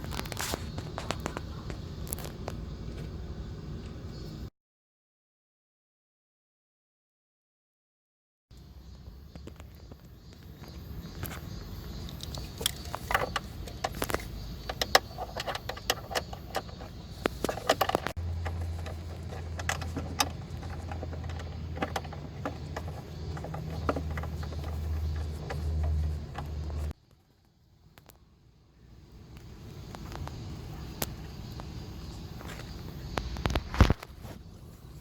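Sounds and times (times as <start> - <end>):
low steady hum: 11.6 - 35.0.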